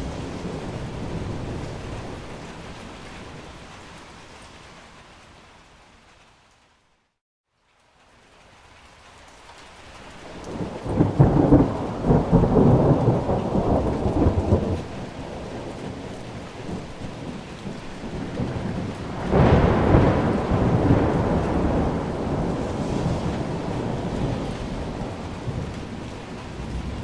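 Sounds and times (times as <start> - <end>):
deep roll of thunder: 0.0 - 3.0, 10.3 - 27.0
steady rain hiss: 0.0 - 27.0.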